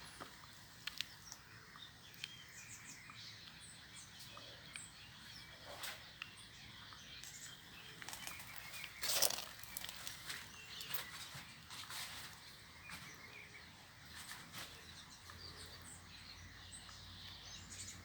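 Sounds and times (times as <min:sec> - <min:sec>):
small birds chirping: 0:00.0 - 0:18.0
rustling: 0:08.0 - 0:13.1.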